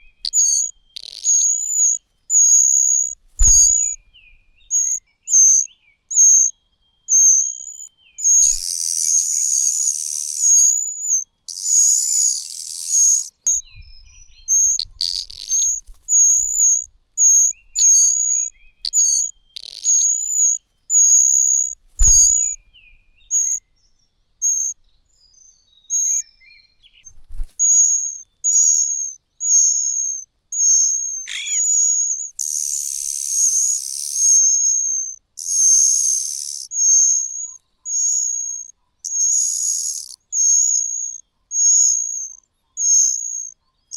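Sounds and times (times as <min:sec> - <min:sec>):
harsh hissing bird calls: 0:00.0 - 0:05.0, 0:07.2 - 0:13.6, 0:14.4 - 0:23.6, 0:27.3 - 0:43.5
nestling birds begging calls: 0:00.0 - 0:06.5, 0:07.1 - 0:23.6, 0:27.0 - 0:43.5
dull thumps: 0:03.2 - 0:04.0, 0:21.8 - 0:22.6.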